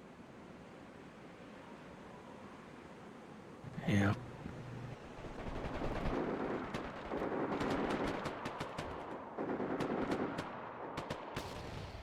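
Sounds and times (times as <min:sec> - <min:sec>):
distant automatic gunfire: 0:05.4 - 0:12.0.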